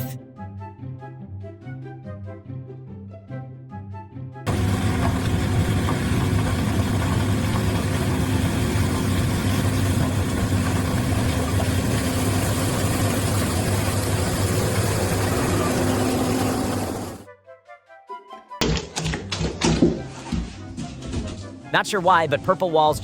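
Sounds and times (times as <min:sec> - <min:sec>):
engine running with clatter: 0:04.5 - 0:17.2.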